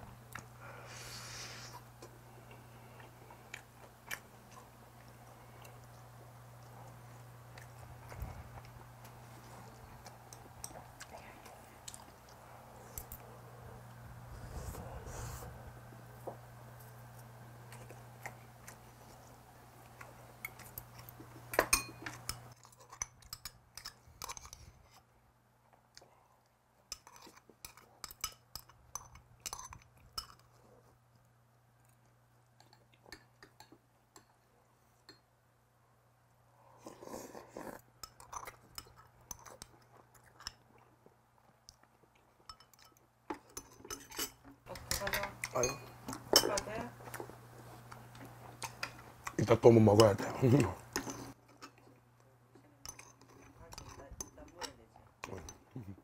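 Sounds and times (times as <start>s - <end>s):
low steady hum: 0.0s - 36.8s
chewing food: 1.8s - 14.1s, 15.9s - 35.2s, 36.6s - 56.0s
chopsticks clinking on porcelain bowl: 42.5s - 47.2s, 52.8s - 55.6s.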